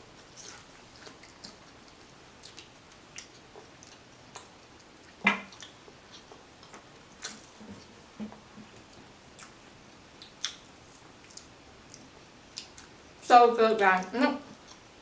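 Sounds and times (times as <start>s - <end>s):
wet chewing and smacking: 0.2s - 13.0s, 14.6s - 15.0s.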